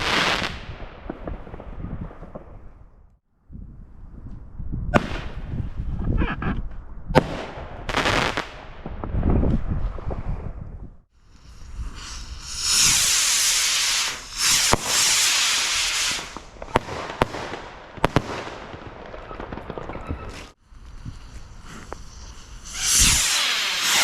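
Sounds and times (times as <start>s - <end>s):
fireworks bangs and crackles: 0.0s - 3.1s, 4.9s - 6.3s, 7.1s - 10.9s, 11.6s - 24.0s
fireworks hissing: 11.2s - 18.4s, 20.3s - 24.0s.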